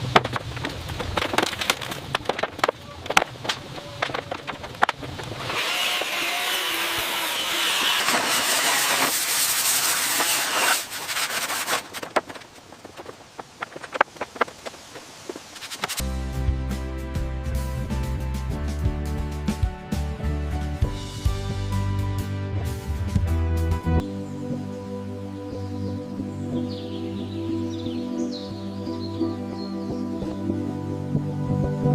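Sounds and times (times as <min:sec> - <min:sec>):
sawing or sanding: 0:05.4 - 0:12.4.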